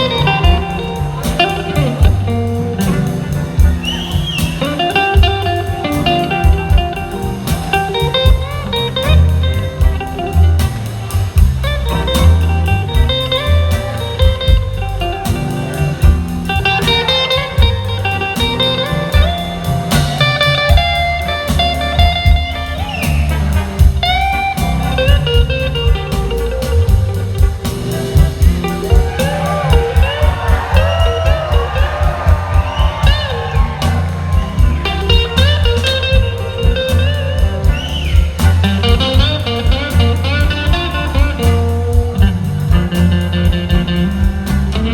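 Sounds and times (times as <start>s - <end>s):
bass and drum groove: 0.0s - 44.9s
electric guitar solo: 11.8s - 44.0s.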